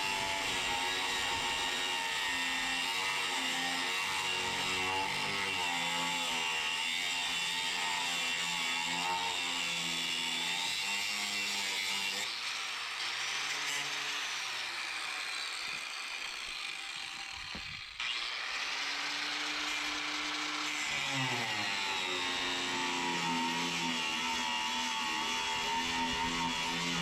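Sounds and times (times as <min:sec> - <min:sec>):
angle grinder cutting steel: 0:00.0 - 0:27.0.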